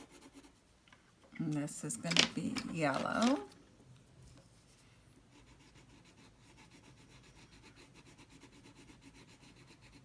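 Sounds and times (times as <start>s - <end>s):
colouring strokes on paper: 0.0s - 0.7s, 4.6s - 10.0s.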